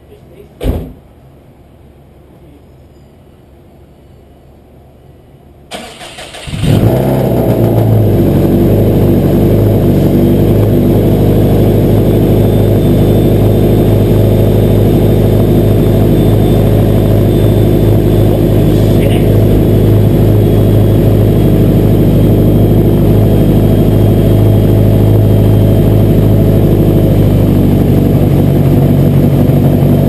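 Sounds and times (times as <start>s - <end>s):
car engine running loudly: 6.1s - 30.0s.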